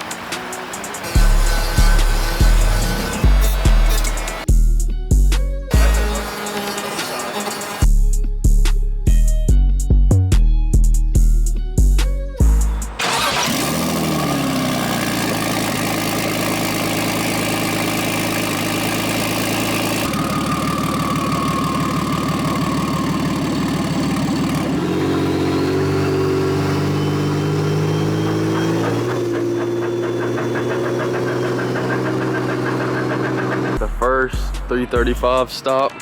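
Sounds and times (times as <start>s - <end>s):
car engine running: 0.0s - 4.5s, 5.7s - 7.9s, 12.5s - 35.6s
music beats: 0.0s - 13.0s, 25.8s - 36.0s.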